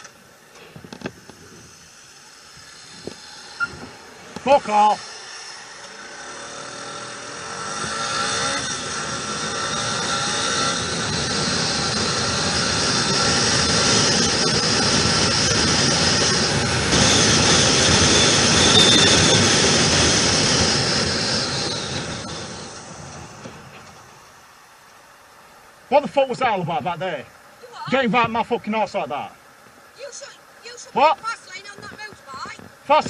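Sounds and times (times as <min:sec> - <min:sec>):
motorcycle riding with wind noise: 0:00.7 - 0:24.1, 0:31.0 - 0:33.0.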